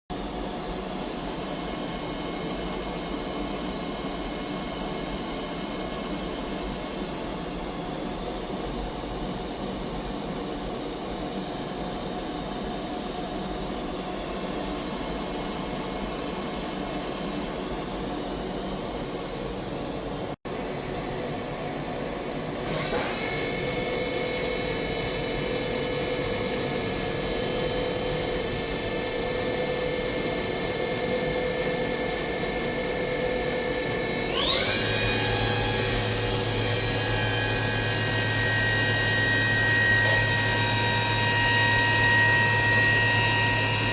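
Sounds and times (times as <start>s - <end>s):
high-pitched machine whine: 0.1s - 43.9s
machining center mechanical hum: 0.1s - 43.9s.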